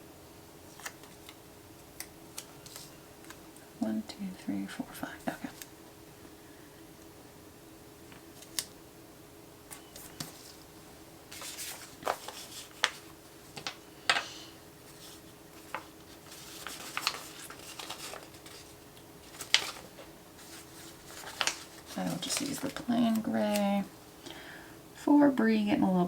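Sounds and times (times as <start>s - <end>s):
faint steady hum: 0.0s - 26.0s
paper rustling: 0.7s - 3.4s, 8.1s - 8.7s, 9.7s - 10.7s, 11.3s - 14.2s, 14.8s - 23.9s.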